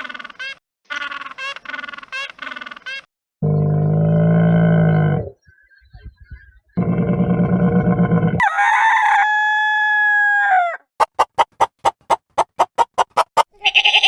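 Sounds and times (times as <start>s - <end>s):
low rough animal call: 3.4s - 5.4s, 6.8s - 8.4s
rooster crowing: 8.4s - 10.9s
rapid clucks: 11.0s - 13.6s.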